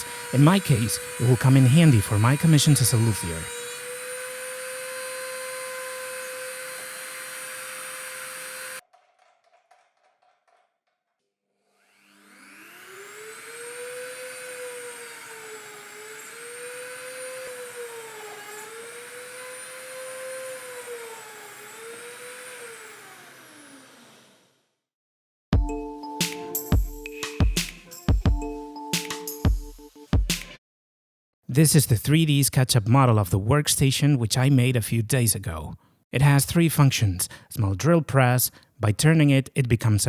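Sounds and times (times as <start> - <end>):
rotary tool motor whining: 0.0 - 8.8, 11.6 - 24.7.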